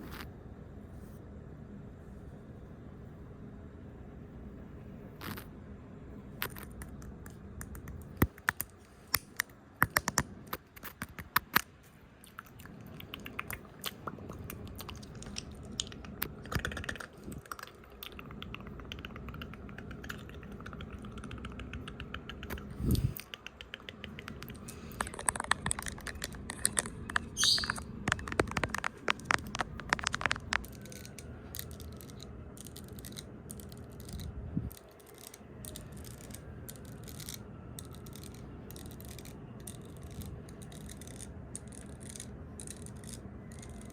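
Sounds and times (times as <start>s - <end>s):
fingertips tapping on microphone: 13.1s - 32.2s.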